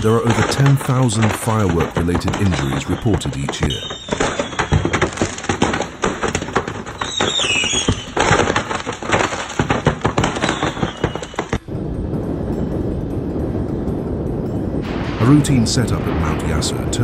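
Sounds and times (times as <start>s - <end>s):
fireworks crackling: 0.0s - 17.0s
firework falling whistle: 2.1s - 5.8s, 7.0s - 8.5s, 10.2s - 11.6s
steady low noise: 11.6s - 17.0s.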